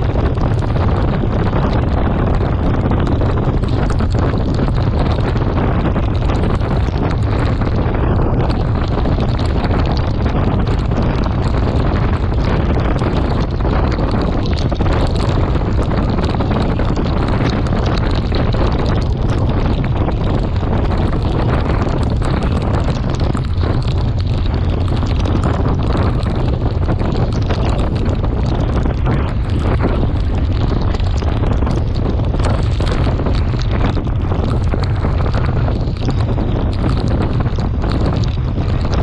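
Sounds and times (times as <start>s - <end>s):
wind buffeting microphone: 0.0s - 39.0s
small ticks: 8.5s - 39.0s.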